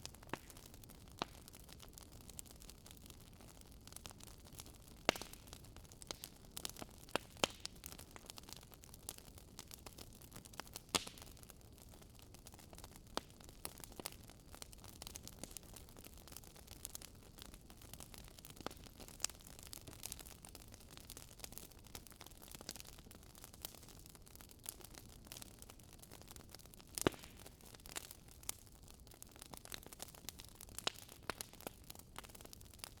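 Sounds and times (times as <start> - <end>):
fire popping: 0.0 - 33.0
wood fire crackling: 0.0 - 33.0.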